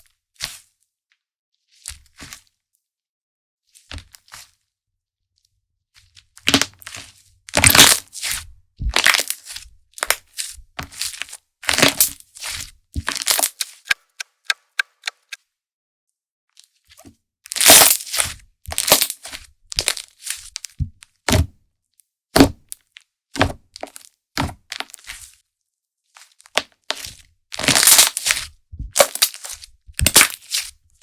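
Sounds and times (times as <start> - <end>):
small quick clicks: 13.9 - 15.4
slime squishing and popping: 26.6 - 30.7.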